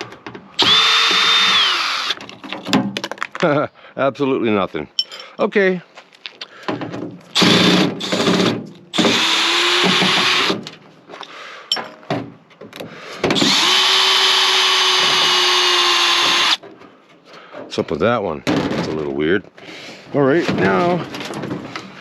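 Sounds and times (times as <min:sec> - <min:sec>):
power drill whining: 0:00.6 - 0:02.2, 0:07.4 - 0:10.7, 0:13.3 - 0:16.6.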